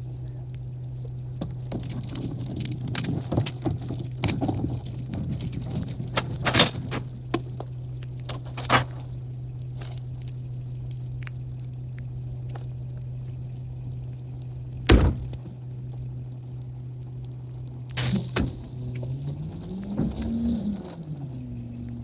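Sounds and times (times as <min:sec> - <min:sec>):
trash knocks and thumps: 0:01.7 - 0:07.1, 0:14.9 - 0:15.5
garbage truck humming: 0:14.9 - 0:15.4, 0:17.9 - 0:22.0.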